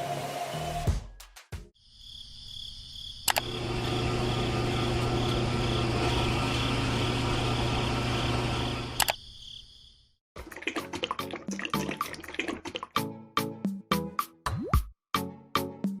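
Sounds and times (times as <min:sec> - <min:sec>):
small motor humming: 0:03.3 - 0:09.1.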